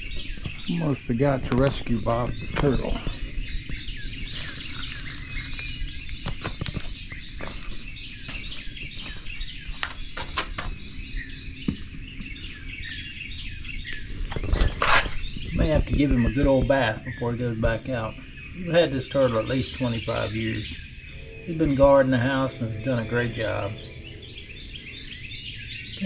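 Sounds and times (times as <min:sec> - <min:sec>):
birds singing and chirping: 0:00.0 - 0:26.0
steady low rumble: 0:10.8 - 0:26.0.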